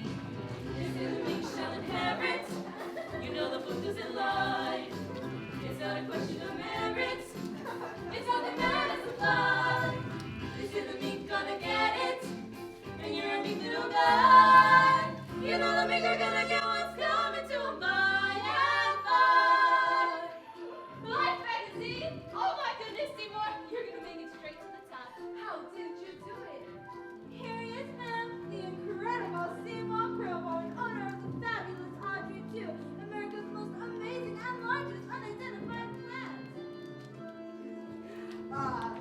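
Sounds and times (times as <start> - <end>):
group singing: 0.0 - 22.0
backing music: 0.0 - 39.0.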